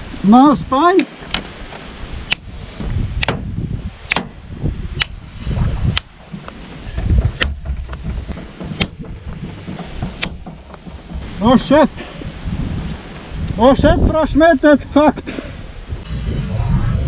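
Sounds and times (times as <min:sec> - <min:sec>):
high metallic ring: 0:06.0 - 0:06.6, 0:07.4 - 0:08.0, 0:08.8 - 0:09.3, 0:10.2 - 0:10.8.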